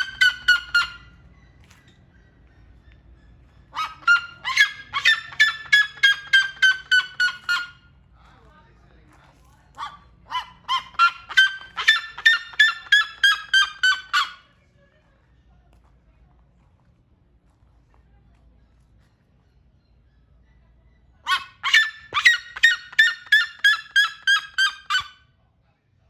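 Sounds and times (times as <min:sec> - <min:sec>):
bird yelping calls: 0:00.0 - 0:07.9, 0:09.7 - 0:14.5, 0:19.4 - 0:25.2.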